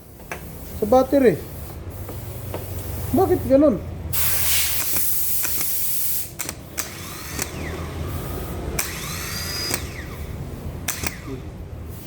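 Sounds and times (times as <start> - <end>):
loud hiss: 0.0 - 6.4
sharp clicks: 4.7 - 7.7, 8.8 - 10.2, 10.8 - 11.4.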